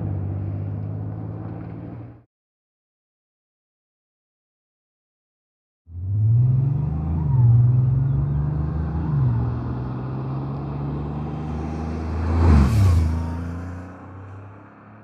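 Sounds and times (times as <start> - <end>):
car engine accelerating: 5.9 - 15.0.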